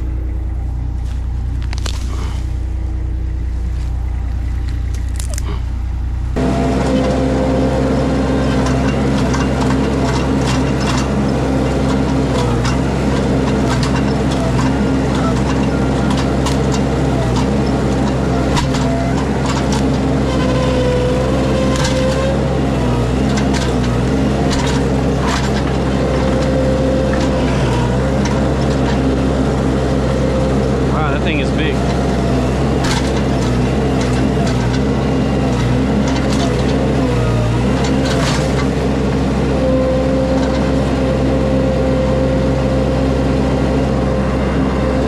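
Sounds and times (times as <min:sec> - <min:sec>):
skid steer engine running: 0:00.0 - 0:45.0
branches and roots snapping: 0:01.0 - 0:02.6, 0:04.6 - 0:05.6.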